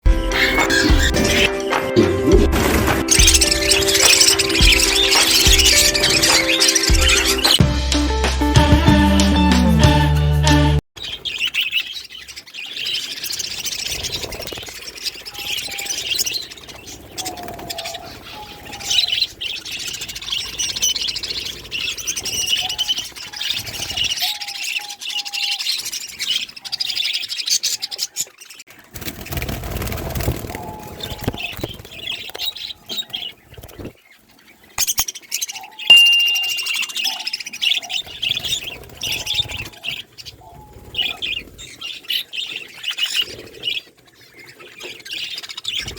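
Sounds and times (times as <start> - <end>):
cage birds chirping: 0.0 - 1.6, 2.6 - 7.6, 11.0 - 45.9
sharp loud chirp: 3.0 - 7.6, 35.9 - 37.5
short whistled notes: 35.9 - 37.2.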